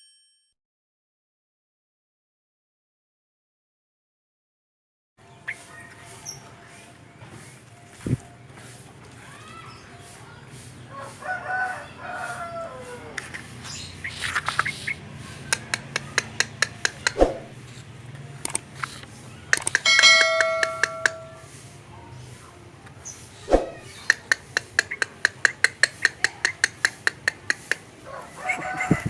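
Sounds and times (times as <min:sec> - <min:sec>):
songbird calls: 0:05.2 - 0:06.8, 0:23.1 - 0:27.8.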